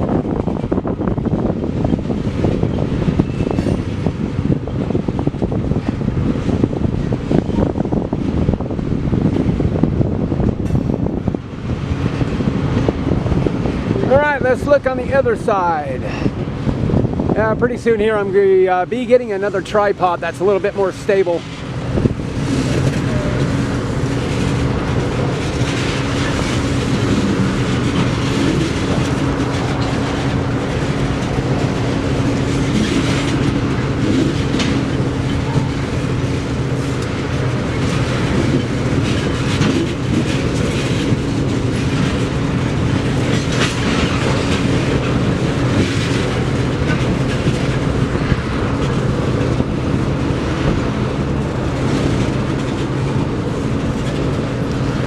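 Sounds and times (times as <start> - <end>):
freight train rolling past: 0.0 - 55.0
steady low hum: 0.0 - 55.0
wheels clicking over rail joints: 20.6 - 55.0.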